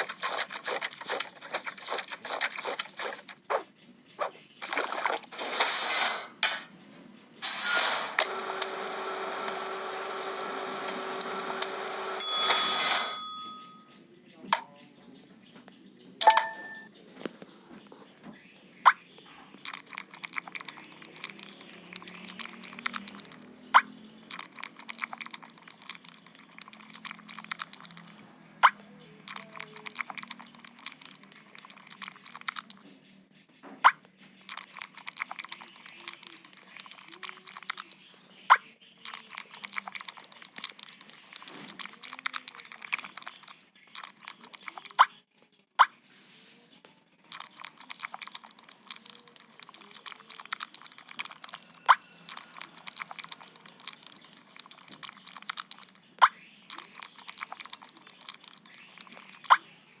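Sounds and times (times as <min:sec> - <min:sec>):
dense crackling crunching: 0:00.0 - 0:03.6, 0:04.6 - 0:06.4, 0:19.5 - 0:23.5, 0:24.2 - 0:28.2, 0:39.0 - 0:45.0, 0:47.2 - 0:59.6.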